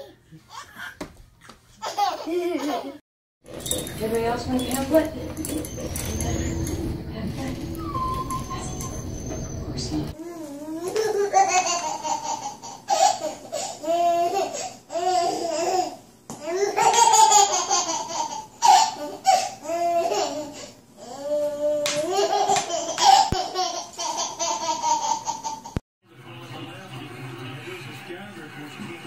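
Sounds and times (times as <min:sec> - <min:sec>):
baby laughing: 0:00.0 - 0:01.1, 0:01.8 - 0:03.0, 0:10.6 - 0:20.7, 0:21.8 - 0:25.8.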